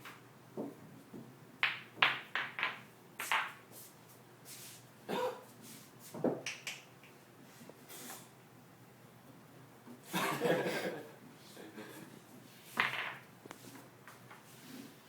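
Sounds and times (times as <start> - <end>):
pool balls knocking: 0.6 - 3.6, 12.8 - 13.3.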